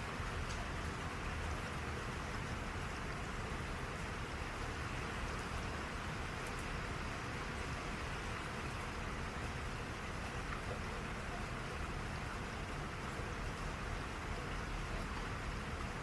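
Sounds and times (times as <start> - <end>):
steady rain hiss: 0.0 - 16.0
raindrop ticks: 0.1 - 4.2, 5.3 - 6.8, 10.2 - 16.0.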